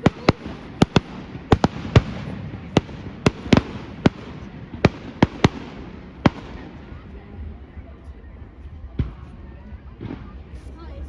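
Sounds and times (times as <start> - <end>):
fireworks bangs: 0.0 - 7.4
steady background noise: 0.0 - 11.0.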